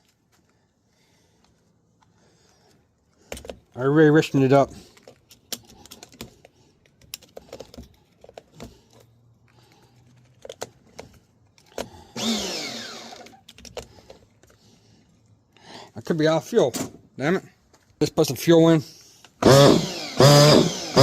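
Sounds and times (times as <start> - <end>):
handling clicks and knocks: 3.1 - 3.8, 4.5 - 12.0
small engine whir winding down: 12.2 - 13.4, 19.4 - 21.0.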